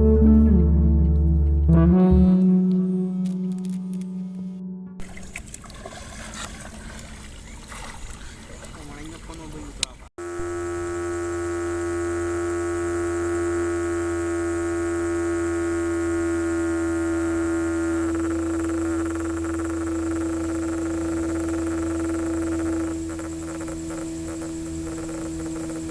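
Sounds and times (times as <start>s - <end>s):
small motor whining: 10.2s - 25.9s.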